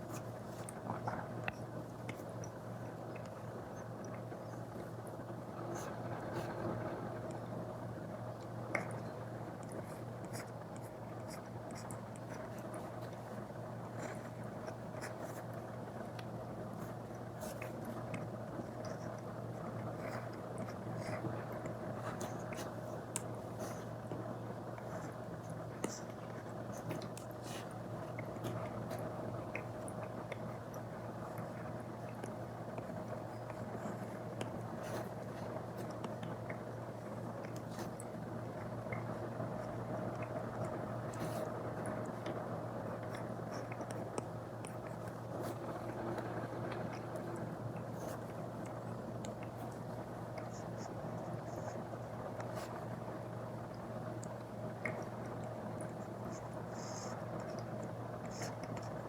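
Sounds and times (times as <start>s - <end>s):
low hum and hiss: 0.0s - 59.0s.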